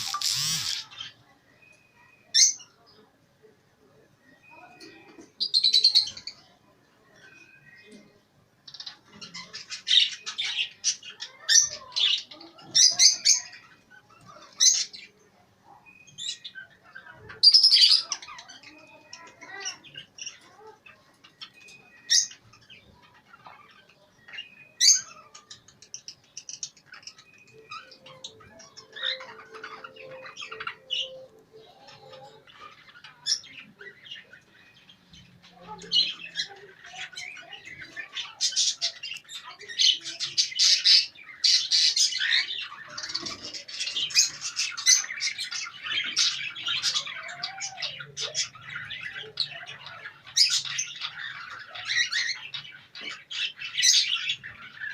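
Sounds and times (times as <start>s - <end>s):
loud bird squawks: 0.0s - 1.2s
caged birds chirping and calling: 0.0s - 54.9s.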